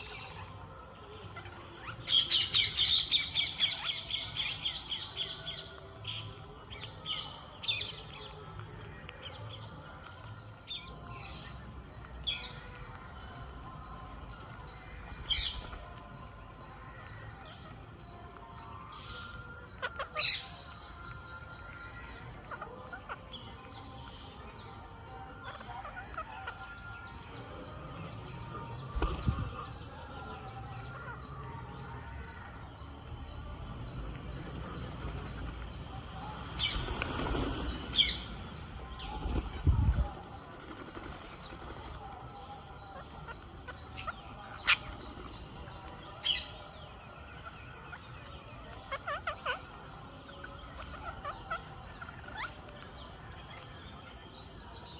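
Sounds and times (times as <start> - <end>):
parakeets flapping wings: 13.9 - 16.2, 28.9 - 29.6, 33.7 - 36.0, 36.6 - 42.3
parakeet calls: 25.1 - 40.4.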